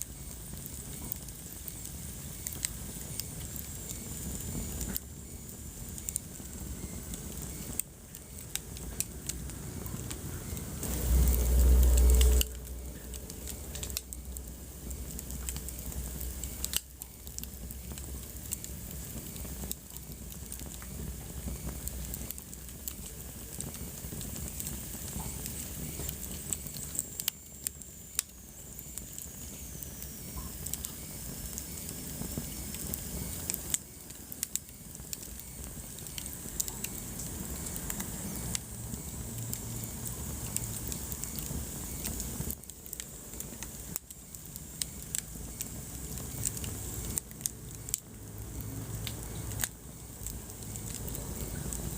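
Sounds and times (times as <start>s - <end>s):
wood fire crackling: 0.0s - 51.9s
low rumble: 9.3s - 16.4s.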